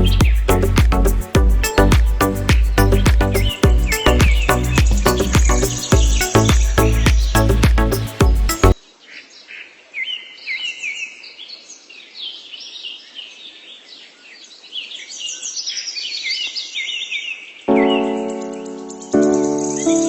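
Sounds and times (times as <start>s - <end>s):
music track: 0.0s - 8.8s, 17.7s - 20.0s
birds chirping and singing: 0.0s - 11.2s, 14.9s - 20.0s.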